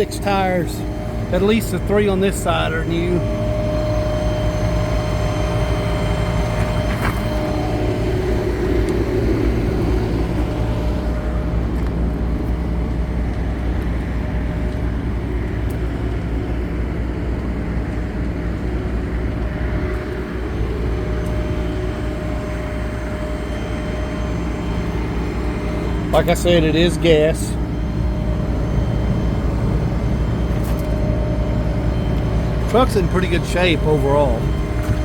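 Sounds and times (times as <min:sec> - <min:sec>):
idling engine drone: 0:00.0 - 0:35.0
thin steady whine: 0:00.0 - 0:35.0.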